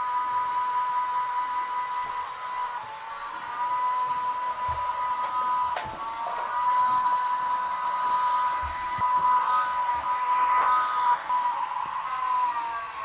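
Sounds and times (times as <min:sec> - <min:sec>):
toy car electric motor whirring: 0:00.3 - 0:13.0.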